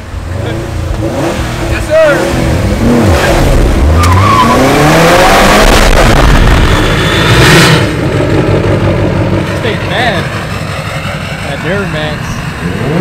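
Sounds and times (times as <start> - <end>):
car engine accelerating: 0.0 - 13.0
loud rush of noise: 0.0 - 13.0.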